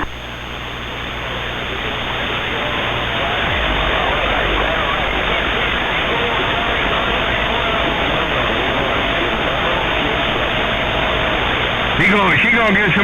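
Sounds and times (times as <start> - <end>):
faint voices: 0.0 - 13.0
radio static hiss: 0.0 - 13.0.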